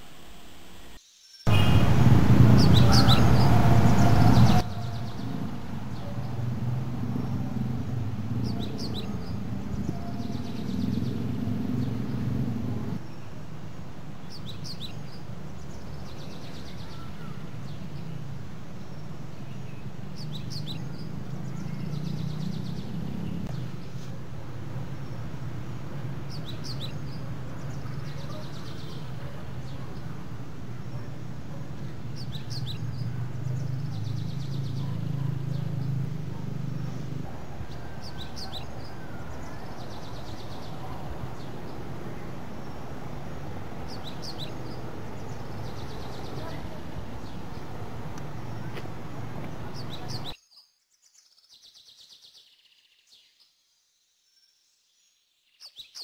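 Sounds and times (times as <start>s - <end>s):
loud burst of noise: 1.5s - 5.7s.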